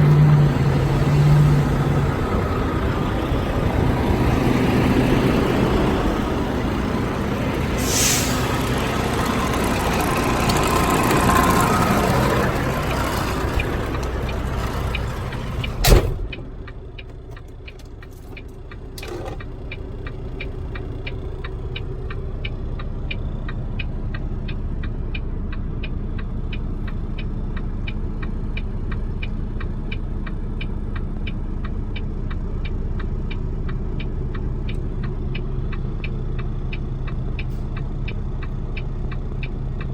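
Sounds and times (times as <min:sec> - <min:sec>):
truck diesel engine idling: 0:00.0 - 0:39.9
even ticking: 0:08.4 - 0:39.9.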